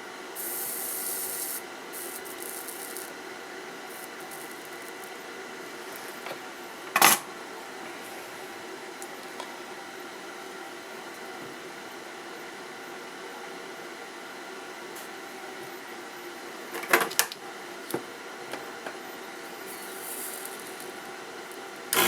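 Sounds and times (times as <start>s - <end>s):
soldering iron hiss: 0.0s - 6.9s, 14.8s - 16.1s, 19.0s - 22.0s.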